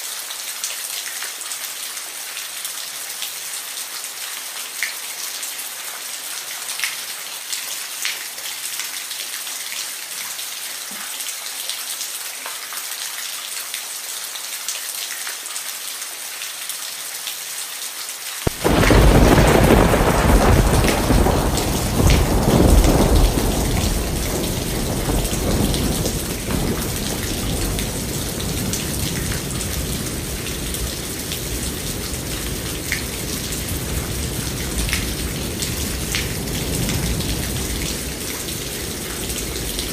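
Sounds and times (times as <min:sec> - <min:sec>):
steady rain: 0:00.0 - 0:39.9
thunder clap rumbling: 0:18.5 - 0:39.9.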